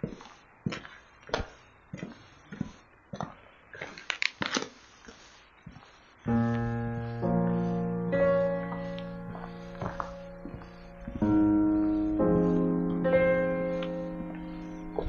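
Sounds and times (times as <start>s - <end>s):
keyboard chords music: 6.3s - 15.0s.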